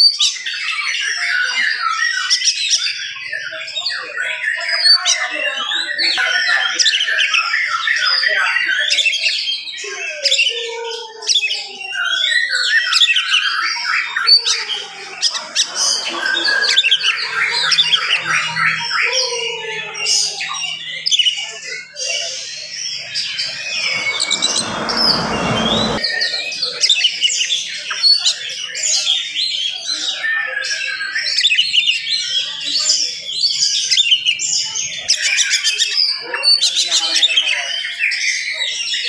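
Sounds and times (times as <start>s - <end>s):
brief rushing noise: 15.1s - 18.5s, 23.0s - 26.1s.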